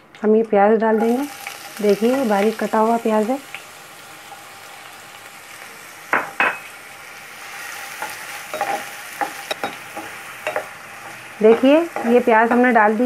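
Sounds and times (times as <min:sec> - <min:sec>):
onion sizzling in oil: 0:00.7 - 0:13.0
spoon scraping pan: 0:07.6 - 0:12.9
spoon knocking on pan: 0:08.0 - 0:12.8.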